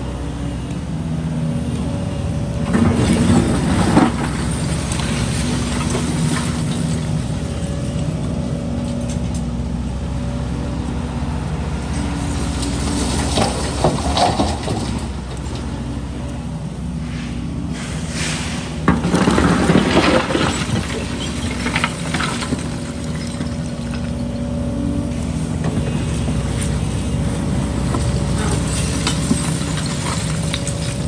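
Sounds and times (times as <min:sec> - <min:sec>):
excavator diesel engine running: 0:00.0 - 0:31.0
concrete debris clattering and scraping: 0:02.7 - 0:07.1, 0:11.9 - 0:15.7, 0:18.6 - 0:31.0.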